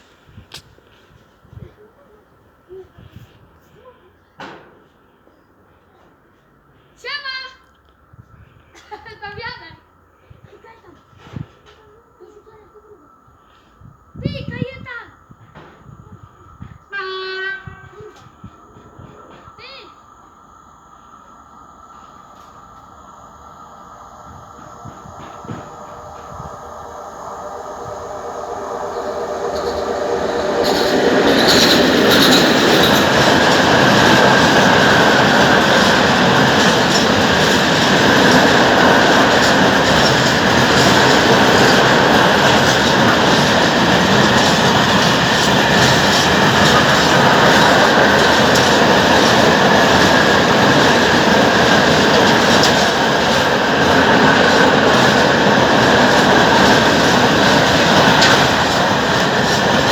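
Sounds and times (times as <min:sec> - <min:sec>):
freight train rumbling past: 0:12.4 - 0:59.9
high ringing from wheels: 0:25.8 - 0:59.9
wheels clicking over rail joints: 0:27.5 - 0:59.9.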